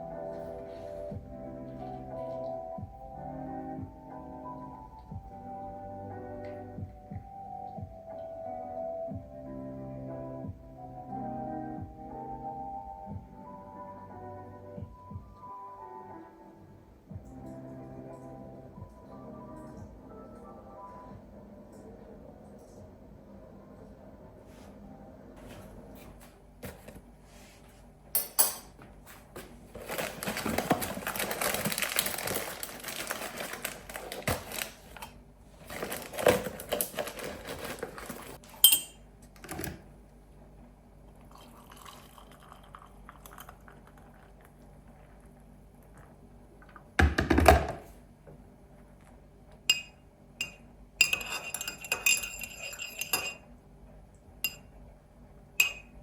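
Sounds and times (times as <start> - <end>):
dishes and cutlery clinking: 28.2 - 28.9, 35.7 - 39.7, 49.7 - 53.5, 54.5 - 54.7, 55.6 - 56.0.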